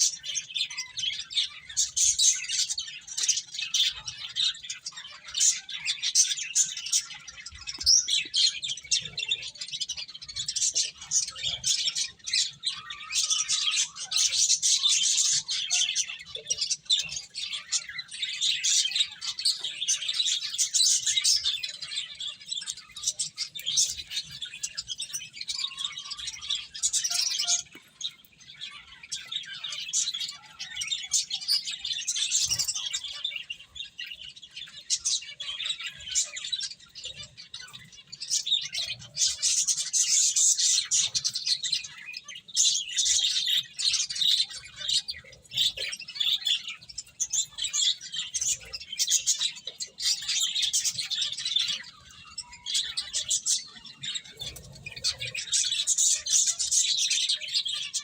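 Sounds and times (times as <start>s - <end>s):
finches chirping: 0.0s - 58.0s.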